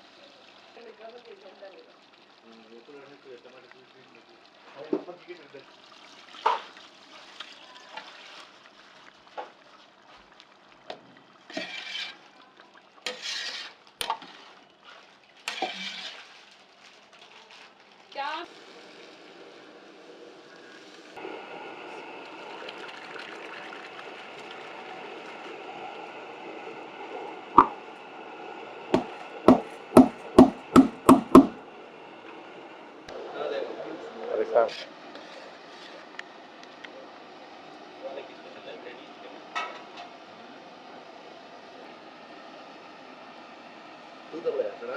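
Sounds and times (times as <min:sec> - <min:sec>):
knife chopping on cutting board: 0:29.0 - 0:31.6
spoon knocking and scraping pot: 0:29.0 - 0:31.6.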